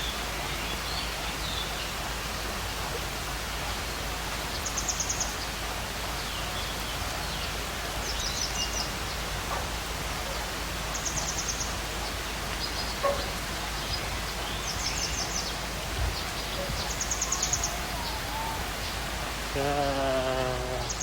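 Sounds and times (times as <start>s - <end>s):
outdoor background noise: 0.0s - 21.0s
high rapid chirping trills: 16.7s - 19.1s
cow mooing: 17.3s - 18.8s.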